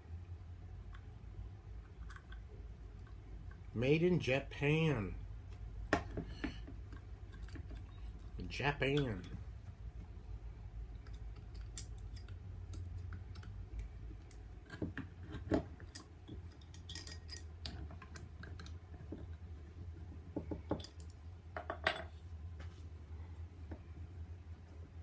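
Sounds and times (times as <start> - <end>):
steady low hum: 0.0 - 25.0
metallic clicks of hand tools: 11.0 - 14.8.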